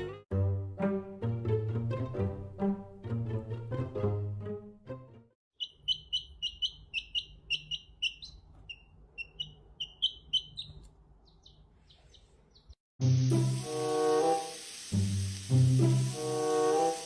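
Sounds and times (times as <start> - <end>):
small bird chirping: 5.5 - 12.8.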